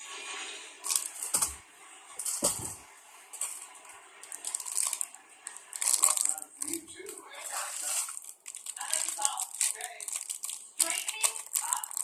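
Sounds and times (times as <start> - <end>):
plastic packaging rustling: 0.8 - 1.6, 3.4 - 12.0.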